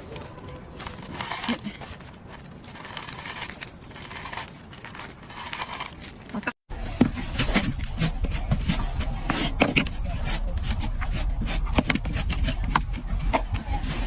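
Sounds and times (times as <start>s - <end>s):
plant material crinkling and tearing: 0.0s - 6.6s.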